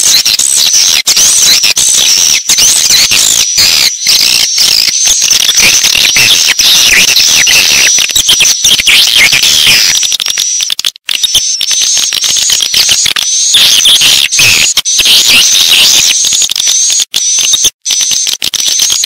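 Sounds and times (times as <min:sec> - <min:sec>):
swiftlets twittering and chirping: 0:00.0 - 0:19.0.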